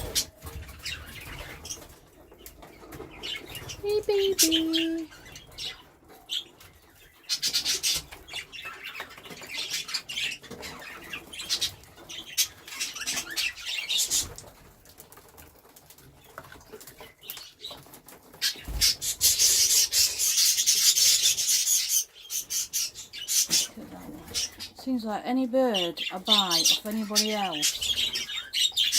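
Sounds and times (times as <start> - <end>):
budgerigars chirping: 0.0 - 2.0, 2.6 - 14.4, 18.4 - 24.9, 25.6 - 28.9
budgerigars fluttering wings: 0.0 - 4.6, 16.0 - 24.8.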